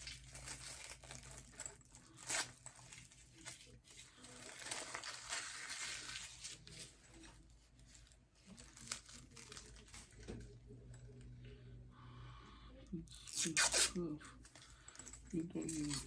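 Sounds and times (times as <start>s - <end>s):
packaging crinkling and rustling: 0.0s - 10.6s.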